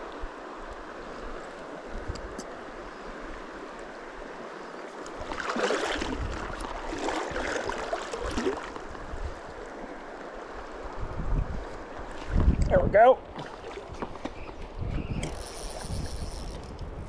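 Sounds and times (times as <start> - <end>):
water splashing: 4.9 - 9.5, 13.2 - 14.6
stream riffle running: 13.3 - 16.8.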